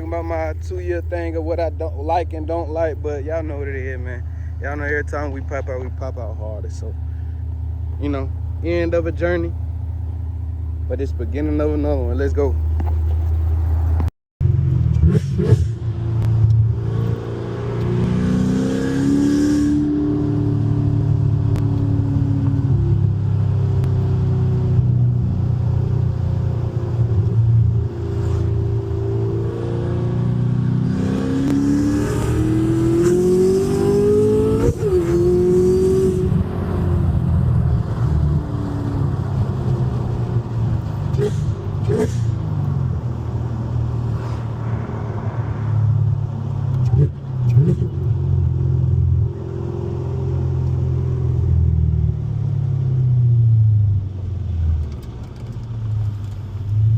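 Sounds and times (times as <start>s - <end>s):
loud car engine revving: 13.7s - 53.8s.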